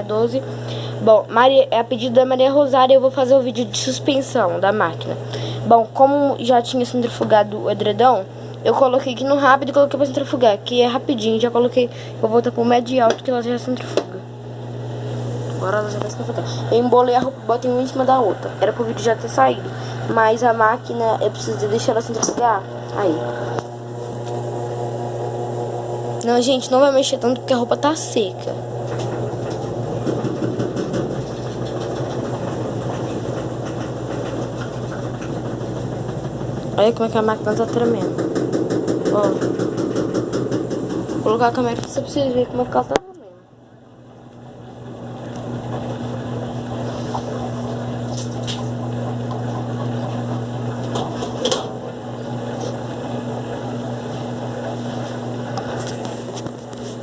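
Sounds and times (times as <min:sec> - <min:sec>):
washing machine spinning: 0:00.0 - 0:57.0
unbalanced load rattling: 0:26.8 - 0:42.9.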